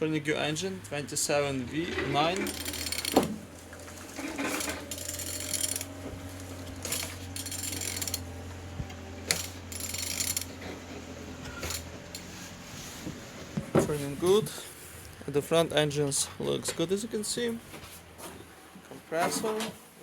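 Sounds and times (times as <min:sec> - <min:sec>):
steady low hum: 0:00.0 - 0:18.6
ratchet wrench clicking: 0:02.4 - 0:03.3, 0:04.3 - 0:05.9, 0:06.8 - 0:08.3, 0:09.3 - 0:10.6, 0:11.6 - 0:12.3.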